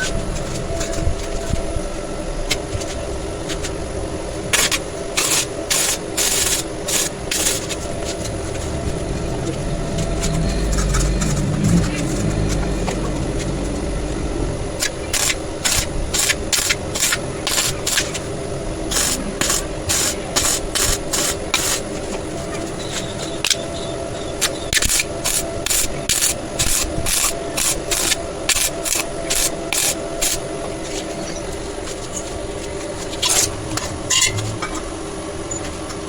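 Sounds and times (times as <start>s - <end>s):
hand tool scraping on metal: 14.8s - 18.3s, 18.9s - 22.0s, 24.4s - 30.4s.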